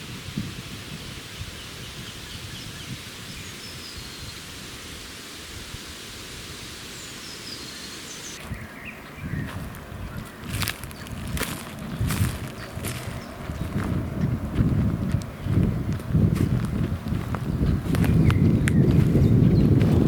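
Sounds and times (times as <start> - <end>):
steady forest hiss: 0.0 - 13.8
faint bird chirps: 6.9 - 11.1.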